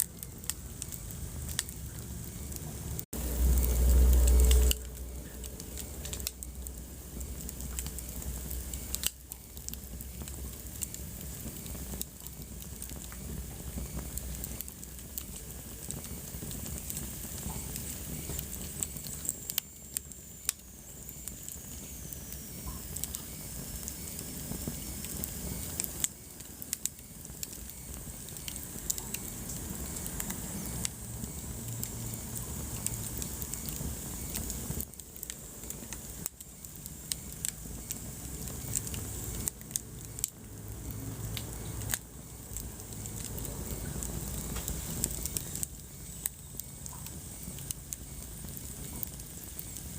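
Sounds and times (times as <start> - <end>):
hiss of burning: 0.0 - 49.9
wood fire crackling and popping: 0.0 - 49.9.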